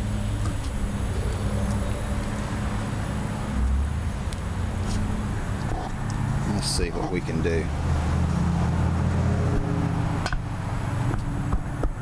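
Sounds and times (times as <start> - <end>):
low engine drone: 0.0 - 11.9.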